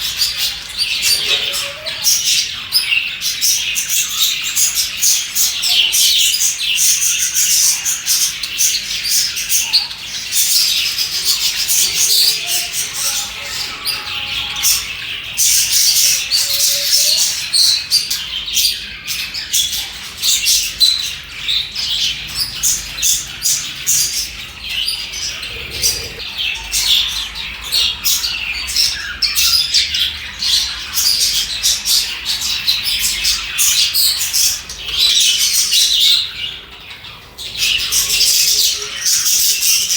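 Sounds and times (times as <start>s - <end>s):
budgies chirping and chattering: 0.0s - 39.9s
harsh squawks: 25.2s - 26.3s.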